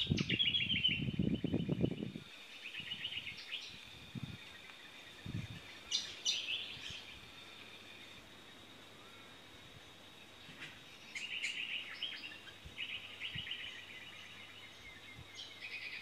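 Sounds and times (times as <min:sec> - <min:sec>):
sharp bird calls: 0:10.5 - 0:16.0.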